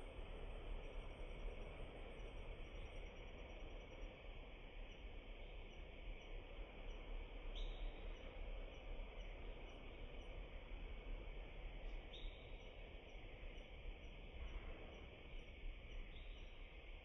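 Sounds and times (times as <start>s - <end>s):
low outdoor background noise: 0.0s - 17.0s.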